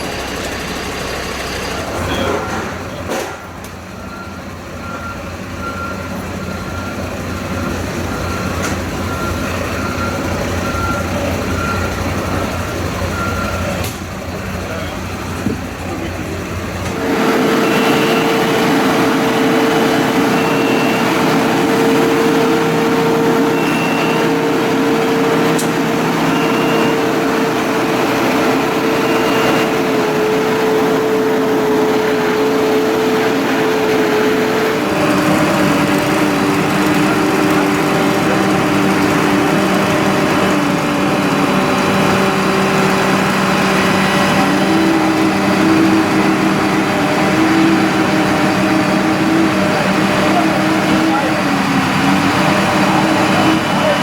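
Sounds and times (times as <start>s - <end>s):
truck engine running at raised revs: 0.0s - 54.0s
short high beeps: 23.3s - 24.4s, 26.2s - 27.4s.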